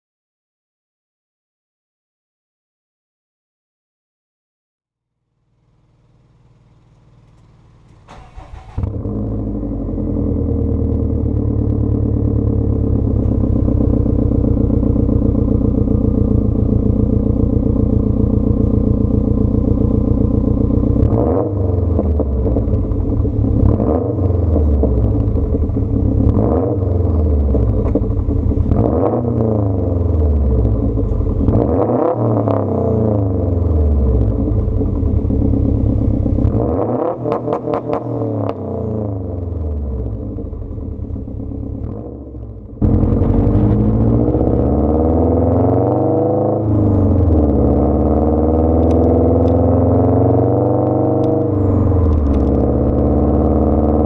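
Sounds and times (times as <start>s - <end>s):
car engine starting: 5.4s - 54.0s
engine revving blips: 20.9s - 35.1s, 36.4s - 40.6s, 41.7s - 54.0s.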